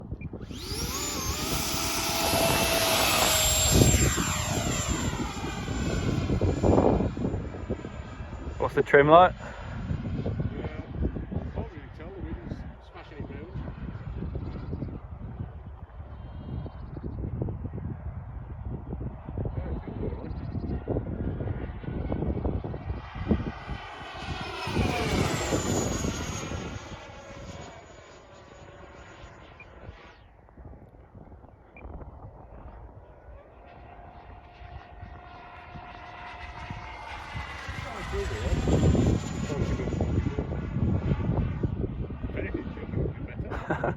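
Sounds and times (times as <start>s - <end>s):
wind buffeting microphone: 0.0s - 27.7s, 29.7s - 33.4s, 34.1s - 43.9s
model jet fan whine passing: 0.1s - 43.9s.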